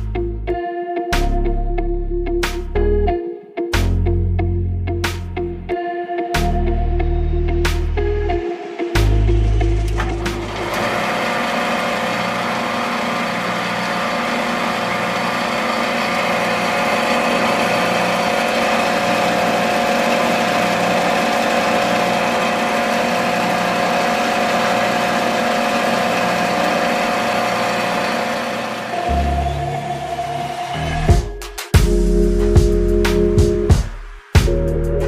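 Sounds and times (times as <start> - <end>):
small motor humming: 10.0 - 30.2.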